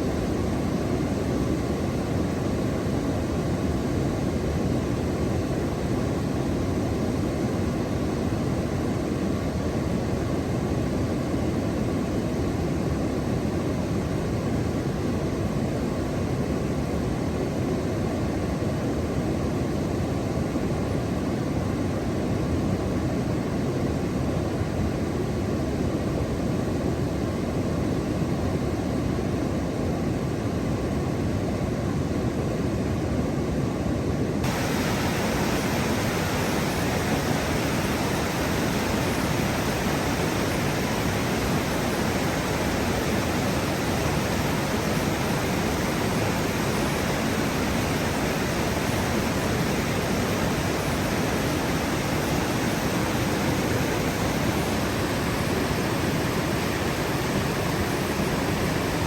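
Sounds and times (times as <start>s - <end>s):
rushing noise with deep rumble: 34.4s - 56.9s.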